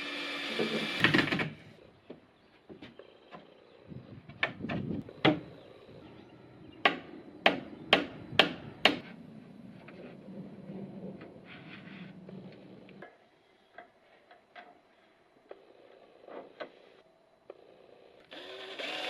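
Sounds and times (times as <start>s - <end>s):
loud machine noise: 0.0s - 1.6s.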